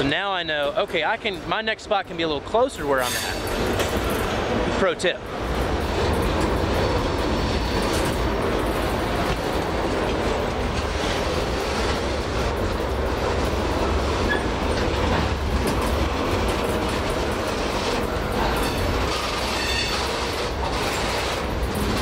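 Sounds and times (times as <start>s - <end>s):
steel wheels rumbling on rail: 0.0s - 22.0s
wheels clicking over rail joints: 5.3s - 22.0s.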